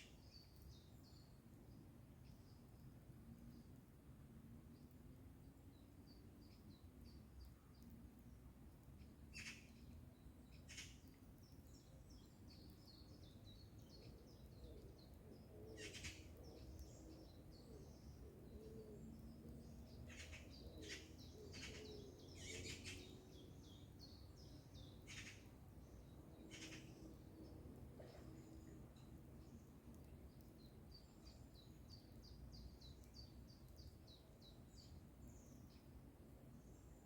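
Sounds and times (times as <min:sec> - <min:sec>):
songbirds twittering: 0:08.9 - 0:37.0.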